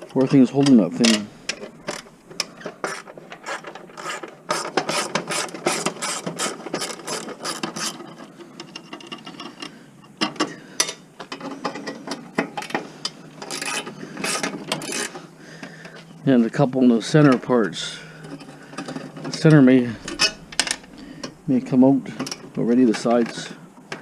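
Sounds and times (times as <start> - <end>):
metal parts knocking: 18.3 - 21.4.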